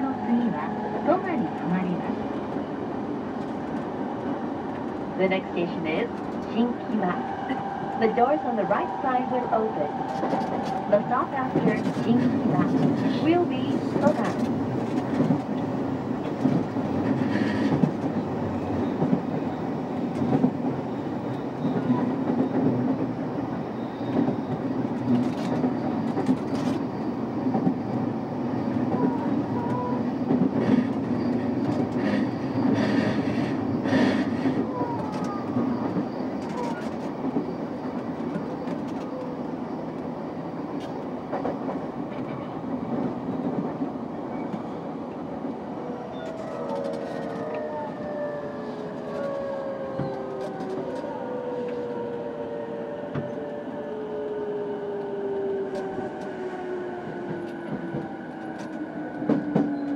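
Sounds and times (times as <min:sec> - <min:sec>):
train rumble and hum: 0:00.0 - 0:59.9.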